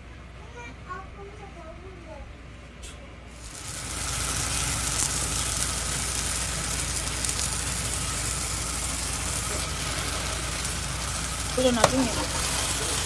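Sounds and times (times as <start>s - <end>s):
low steady hum: 0.0s - 13.0s
food sizzling in oil: 3.4s - 13.0s.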